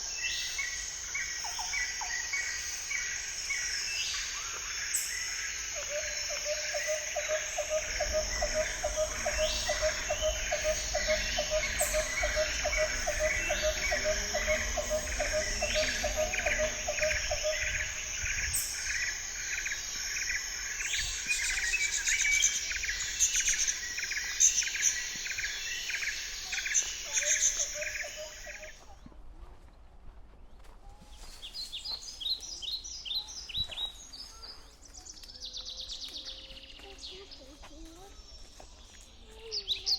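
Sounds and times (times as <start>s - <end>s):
insects chirping: 0.0s - 28.8s
birds calling: 5.6s - 28.8s
low pulsing note: 7.3s - 18.6s.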